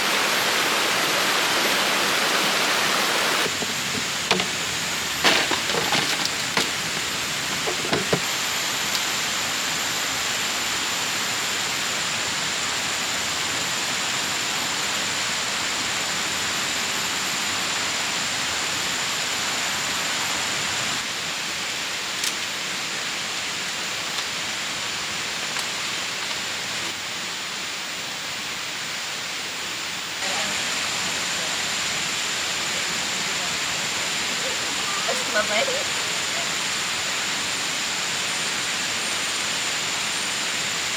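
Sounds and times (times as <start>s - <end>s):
light knocks: 3.5s - 8.3s.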